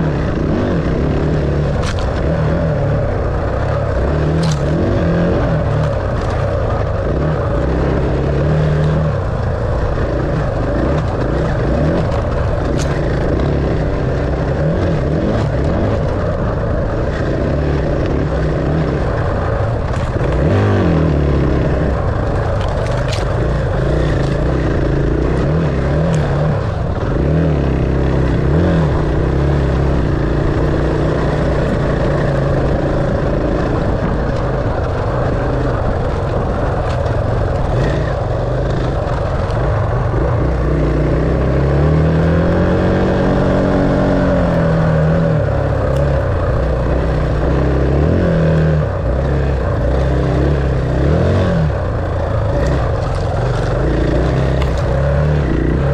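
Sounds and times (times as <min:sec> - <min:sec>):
dirt bike engine revving: 0:00.0 - 0:55.9
sharp clicks: 0:04.4 - 0:05.2, 0:10.6 - 0:13.5, 0:21.5 - 0:26.7, 0:52.0 - 0:55.9.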